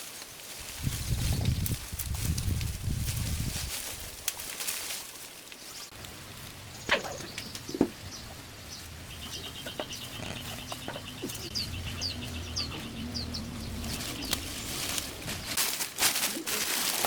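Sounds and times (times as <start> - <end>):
high falling bird chirps: 6.7 - 15.6
bird trill: 9.1 - 14.7.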